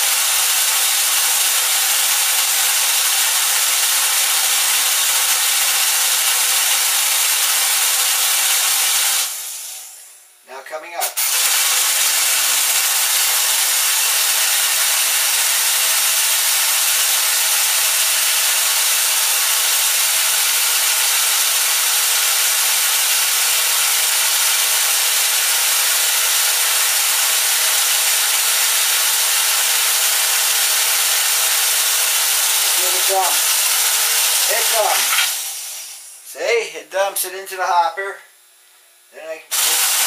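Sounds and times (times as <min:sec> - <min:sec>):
electric lift motor whirring: 0:11.3 - 0:36.2.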